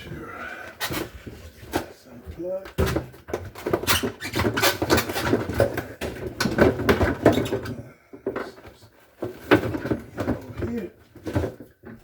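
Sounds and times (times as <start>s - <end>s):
plastic parts clicking and clattering: 2.6s - 12.0s.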